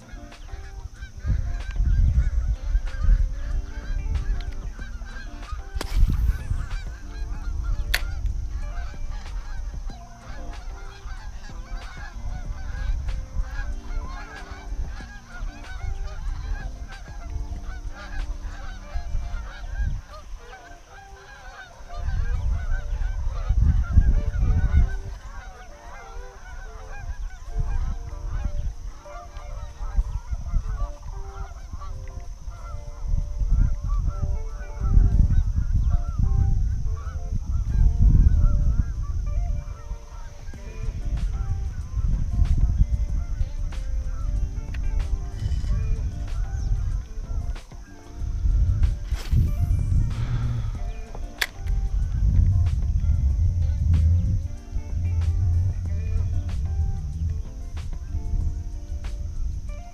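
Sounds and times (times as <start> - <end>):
animals honking: 0.0 - 58.7
heavy low rumbling: 48.1 - 59.7.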